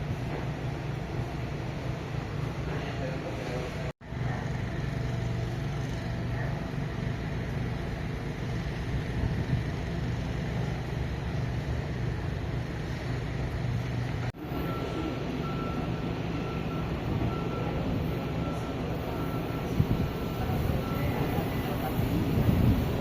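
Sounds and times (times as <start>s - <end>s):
metro train hum and rumble: 0.0s - 23.0s.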